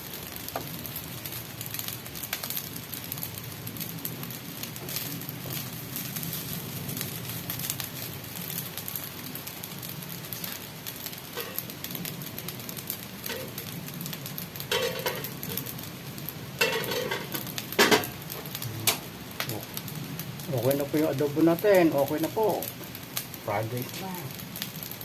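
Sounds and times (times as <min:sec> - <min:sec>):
food sizzling in a frying pan: 0:00.0 - 0:25.0.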